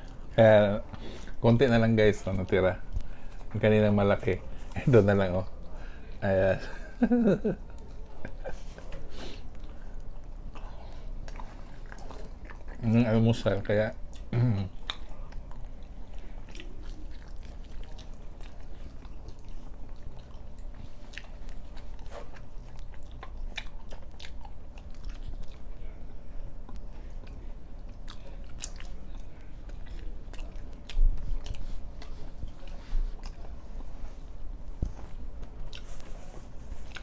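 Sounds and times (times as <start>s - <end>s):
steady low hum: 0.0s - 37.0s
person chewing flatbread: 7.0s - 13.0s, 14.0s - 26.0s, 26.6s - 37.0s.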